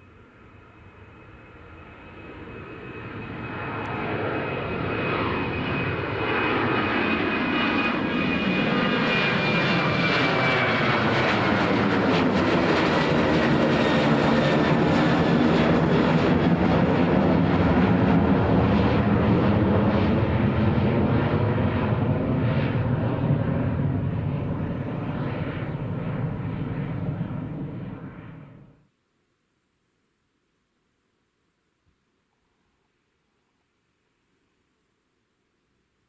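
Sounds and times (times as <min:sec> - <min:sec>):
airliner engines roaring: 0:00.0 - 0:28.8.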